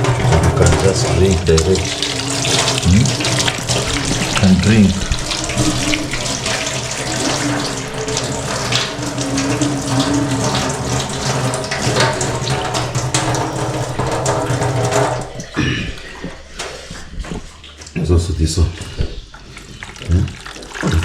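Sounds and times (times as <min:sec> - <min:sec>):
water running from a tap: 0:00.0 - 0:21.0.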